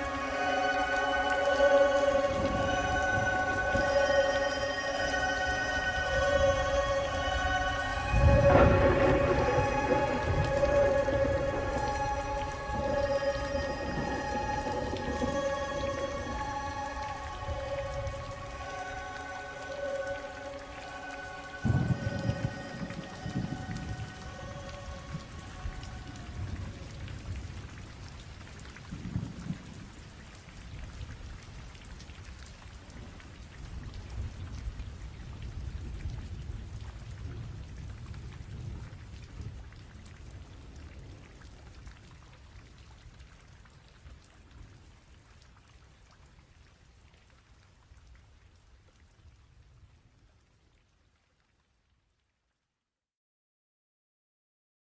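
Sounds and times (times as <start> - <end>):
steady rain: 0.0 - 52.7
low rolling thunder: 6.0 - 18.7, 21.6 - 28.0, 28.9 - 30.0.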